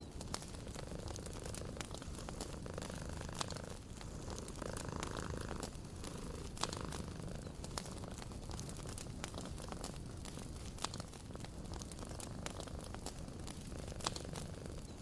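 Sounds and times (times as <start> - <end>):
cat purring: 0.0 - 15.0
wood fire crackling: 0.0 - 15.0.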